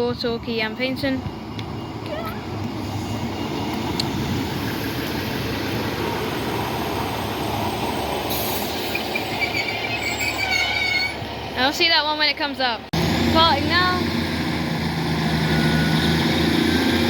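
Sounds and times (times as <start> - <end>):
train rumbling into station: 0.0 - 17.0
train brakes squealing: 0.2 - 4.8, 6.6 - 11.2.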